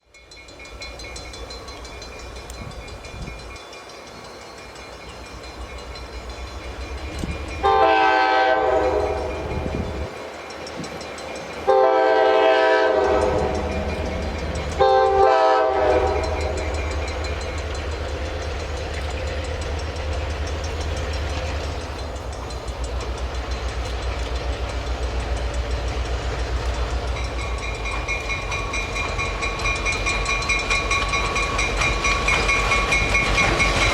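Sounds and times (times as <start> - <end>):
locomotive engine rumble: 0.2 - 33.9
diesel locomotive horn blasts: 7.6 - 10.1, 11.7 - 17.1.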